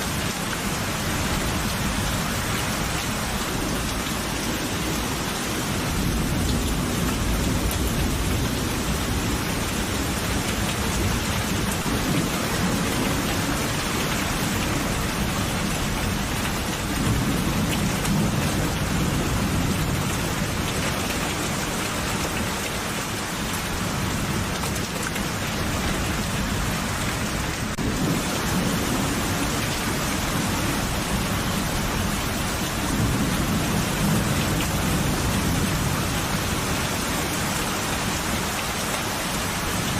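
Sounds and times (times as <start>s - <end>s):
heavy rain: 0.0s - 39.9s
low rolling thunder: 27.7s - 37.4s.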